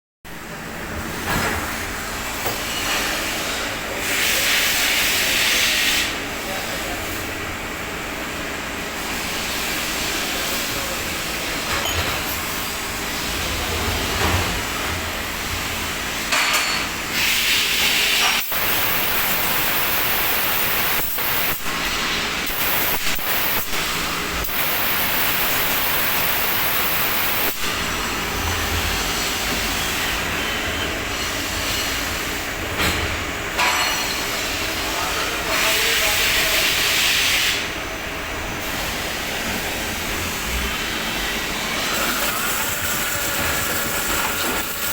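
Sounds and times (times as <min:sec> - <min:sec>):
machine humming: 0:18.4 - 0:31.6.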